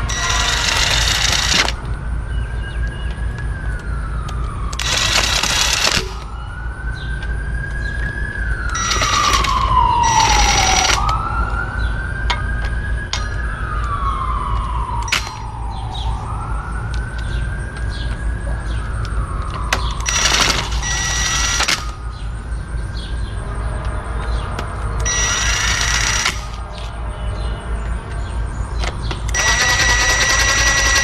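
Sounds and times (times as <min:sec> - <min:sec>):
loud noisy bursts: 0:00.0 - 0:01.8, 0:04.8 - 0:06.2, 0:08.8 - 0:11.1, 0:20.0 - 0:22.0, 0:25.1 - 0:26.7, 0:29.3 - 0:31.0
sharp clicks: 0:00.0 - 0:02.0, 0:02.8 - 0:06.3, 0:07.1 - 0:11.6, 0:12.2 - 0:16.0, 0:19.0 - 0:22.3, 0:23.8 - 0:27.0, 0:28.1 - 0:31.0
siren wailing: 0:00.0 - 0:31.0.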